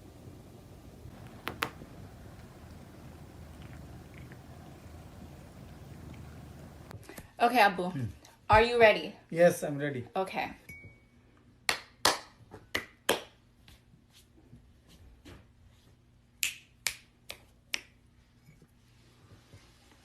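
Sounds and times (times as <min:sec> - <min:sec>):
sharp snaps: 0:01.1 - 0:04.6, 0:16.4 - 0:18.0.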